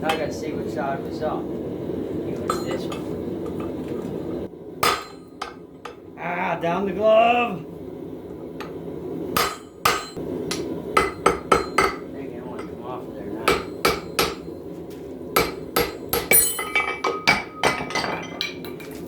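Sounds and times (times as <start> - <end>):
hammer striking steel on anvil: 2.5 - 3.1, 4.8 - 6.0, 9.4 - 12.8, 13.4 - 14.5, 15.4 - 18.8.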